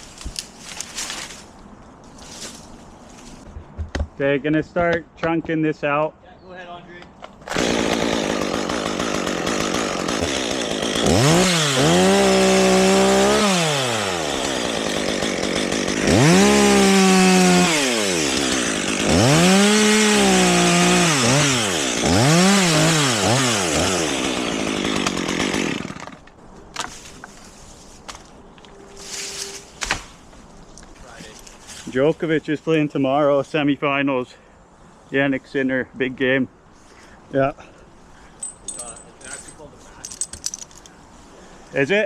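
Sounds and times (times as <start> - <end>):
chainsaw cutting wood: 7.4 - 26.3.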